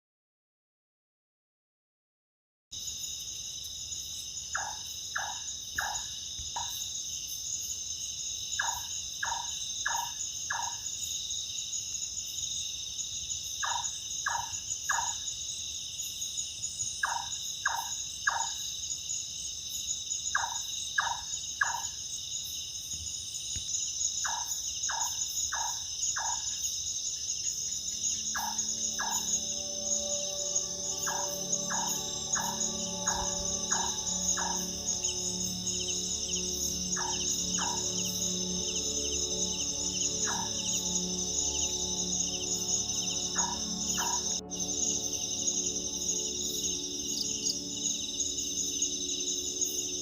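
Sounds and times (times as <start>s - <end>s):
crickets chirping: 2.7s - 50.0s
night bird calling: 4.4s - 6.9s, 8.6s - 11.0s, 13.6s - 15.3s, 16.8s - 18.7s, 20.3s - 22.0s, 24.2s - 50.0s
background music: 27.7s - 50.0s.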